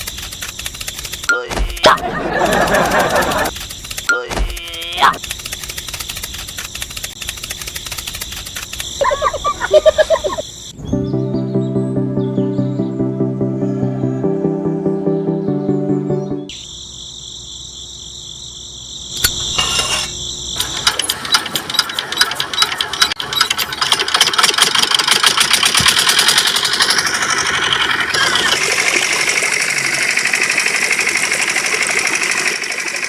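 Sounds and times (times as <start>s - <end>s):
small motor whining and rattling: 0.0s - 9.0s, 19.4s - 33.0s.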